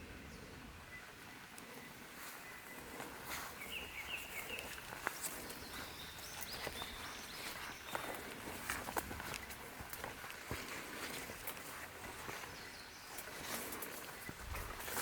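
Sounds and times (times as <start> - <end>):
footsteps crunching on wet trail: 1.7 - 15.0
bird chirps: 3.5 - 8.4.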